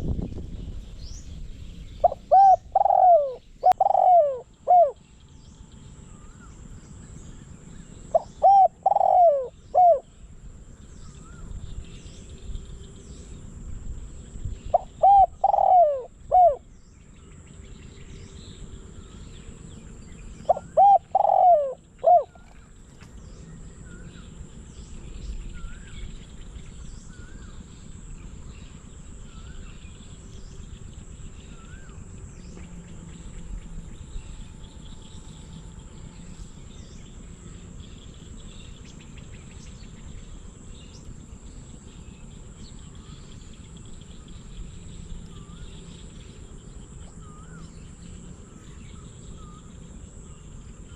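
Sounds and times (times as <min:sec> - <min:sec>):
small birds chirping: 0:00.0 - 0:50.9
dove cooing: 0:02.0 - 0:05.0, 0:08.1 - 0:10.2, 0:14.7 - 0:16.7, 0:20.4 - 0:22.7.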